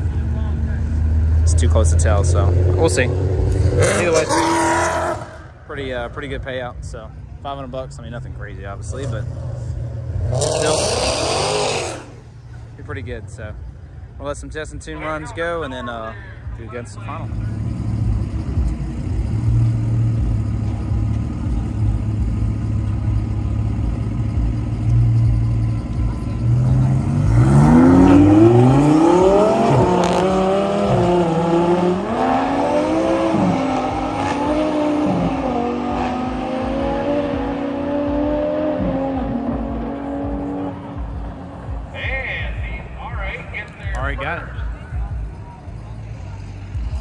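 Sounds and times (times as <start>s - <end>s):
sports car engines revving: 0.0s - 47.0s.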